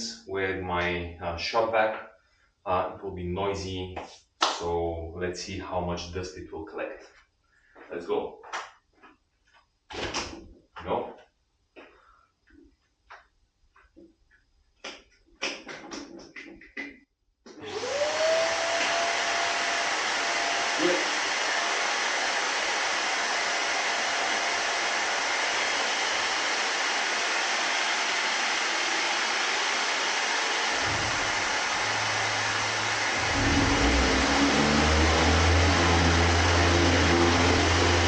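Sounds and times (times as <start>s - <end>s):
shop vacuum running: 17.5s - 38.0s
low hum: 30.7s - 38.0s.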